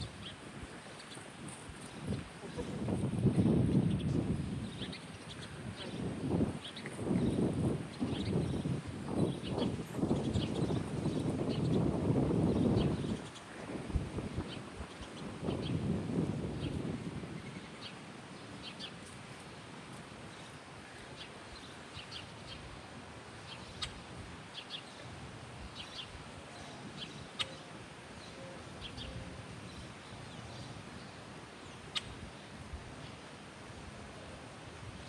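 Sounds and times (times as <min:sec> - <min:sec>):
small birds chirping: 0:00.0 - 0:15.9, 0:25.7 - 0:33.2
outdoor background hiss: 0:00.0 - 0:35.0.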